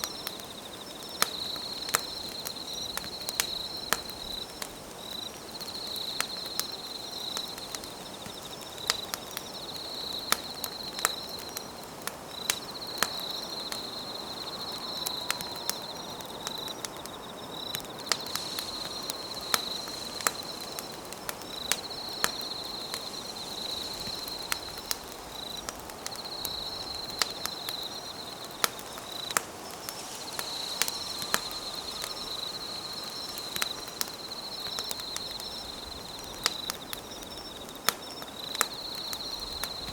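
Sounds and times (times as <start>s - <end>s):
campfire crackling: 0.0s - 39.9s
insect trilling: 12.8s - 36.3s.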